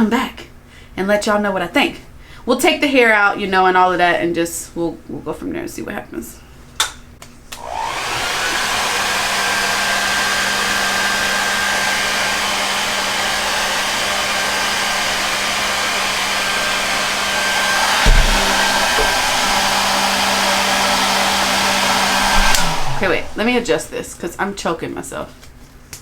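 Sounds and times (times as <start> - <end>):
hair dryer blowing: 7.6 - 23.9
dull bump: 17.9 - 20.8, 22.1 - 23.6.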